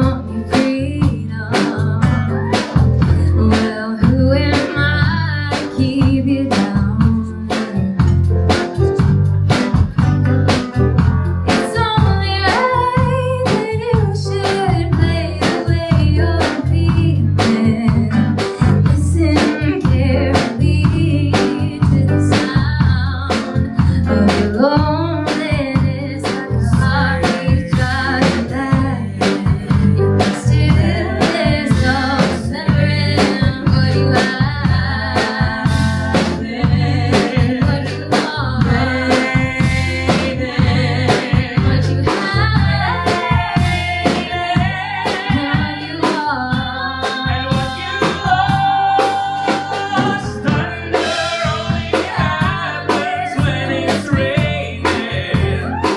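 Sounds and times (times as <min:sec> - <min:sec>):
folk-rock band playing: 0:00.0 - 0:55.9
people singing: 0:25.3 - 0:55.9.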